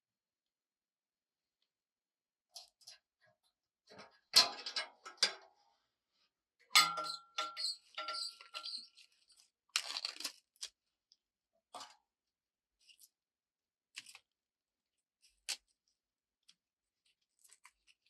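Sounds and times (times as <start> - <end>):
short metallic ring: 6.8 - 8.8.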